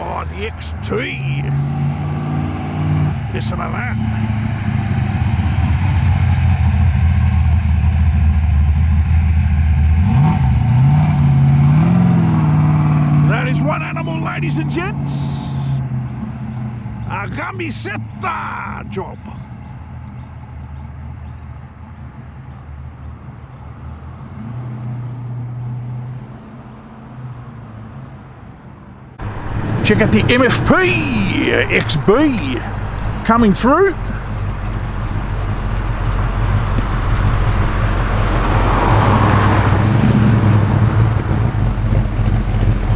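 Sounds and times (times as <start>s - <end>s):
car engine idling and revving: 0.0s - 17.1s, 29.2s - 42.9s
car engine rumbling at low revs: 29.2s - 42.9s.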